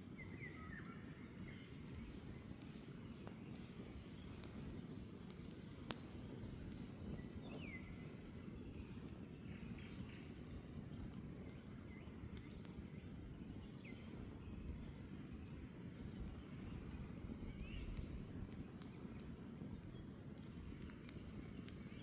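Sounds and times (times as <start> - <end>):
campfire crackling and popping: 0.0 - 22.0
bird chirping: 0.1 - 14.9.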